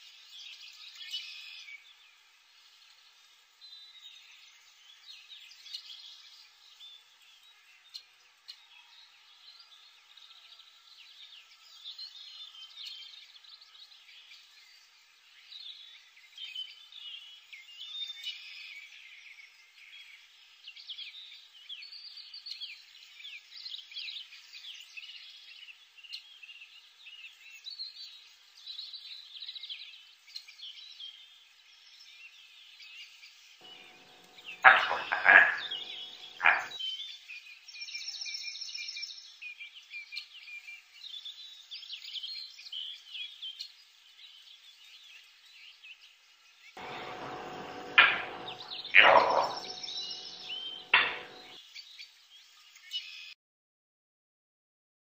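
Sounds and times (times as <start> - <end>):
faint steady hiss: 33.4 - 37.7
birds twittering: 33.6 - 37.0, 46.8 - 51.6.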